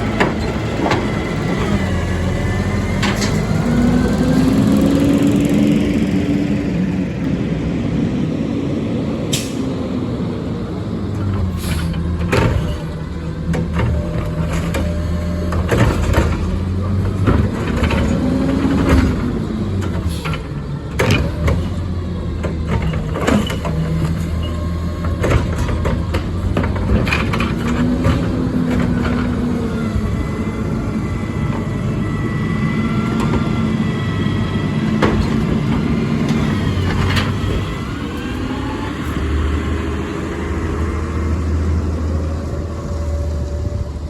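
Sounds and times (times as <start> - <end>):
diesel truck engine revving: 0.0 - 44.0.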